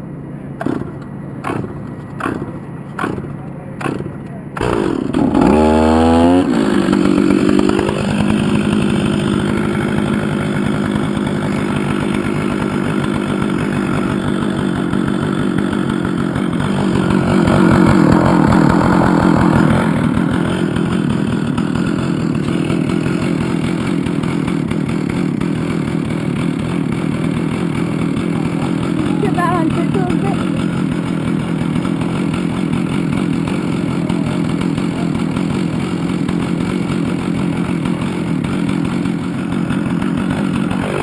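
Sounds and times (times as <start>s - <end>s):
chainsaw cutting wood: 0.5s - 41.0s.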